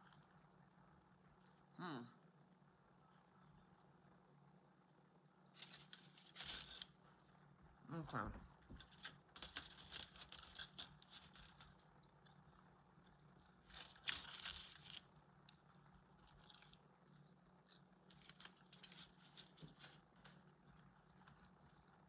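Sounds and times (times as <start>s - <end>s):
crunching and chewing: 0.0s - 1.7s, 5.4s - 7.5s, 8.7s - 22.0s
low steady hum: 0.0s - 22.0s.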